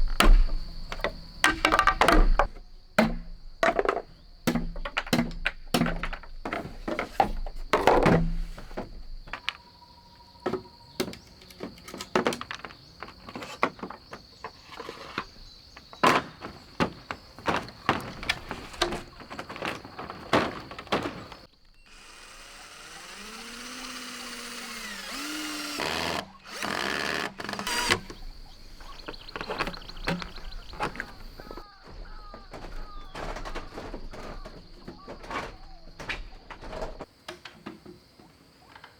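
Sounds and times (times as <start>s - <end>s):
creaking with squeals: 9.3s - 37.1s.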